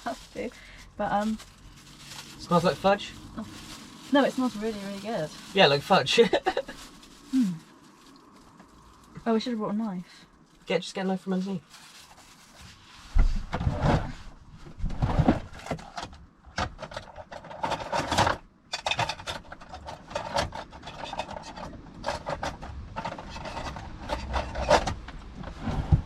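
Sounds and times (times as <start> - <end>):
rummaging in wooden drawer: 13.2 - 26.0.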